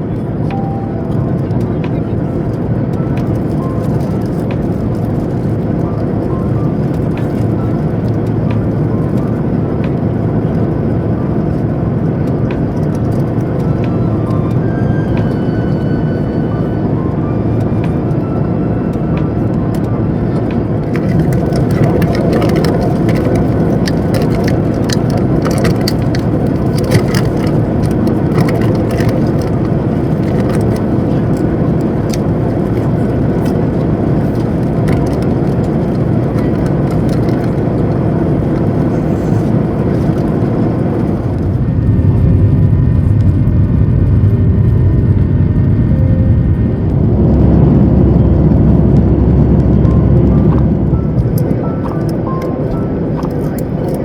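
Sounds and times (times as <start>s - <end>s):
jet engine rumble in cabin: 0.0s - 54.0s
rattles and clicks: 19.0s - 42.3s.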